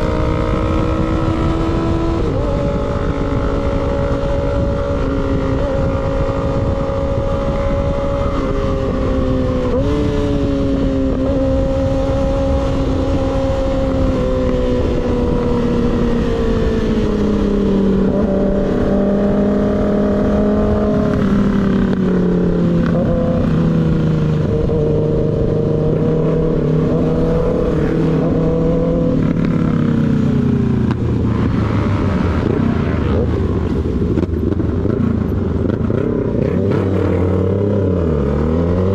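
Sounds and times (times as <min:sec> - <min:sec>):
motorcycle engine running: 0:00.0 - 0:38.9
steady rushing noise: 0:00.0 - 0:38.9.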